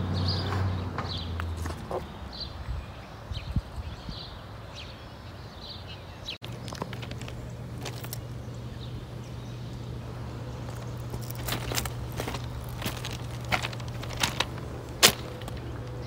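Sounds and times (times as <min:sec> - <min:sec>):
light footsteps: 0:06.4 - 0:08.4, 0:10.6 - 0:16.0
steady low hum: 0:06.4 - 0:16.0.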